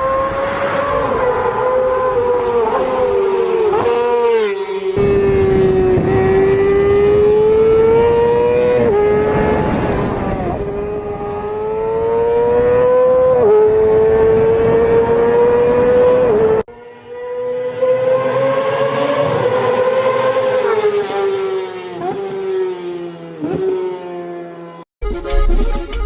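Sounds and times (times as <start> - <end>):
vehicle engine accelerating through gears: 0.0 - 16.6.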